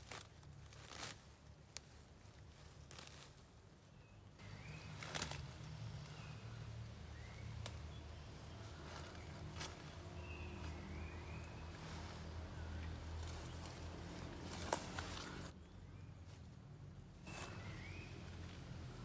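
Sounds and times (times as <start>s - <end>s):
bird-like chirps: 4.0s - 16.2s, 17.3s - 19.0s.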